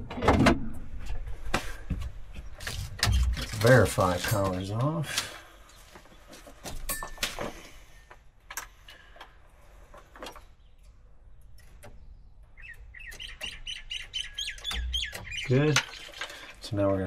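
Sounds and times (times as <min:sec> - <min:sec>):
bird chirping rapidly: 0:12.0 - 0:16.6.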